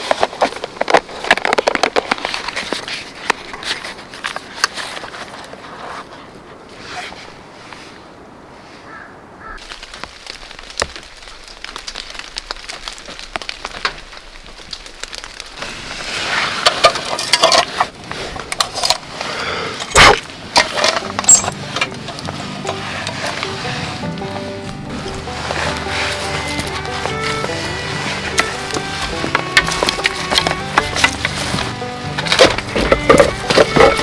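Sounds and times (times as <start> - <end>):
wood crackling in campfire: 8.9 - 34.0.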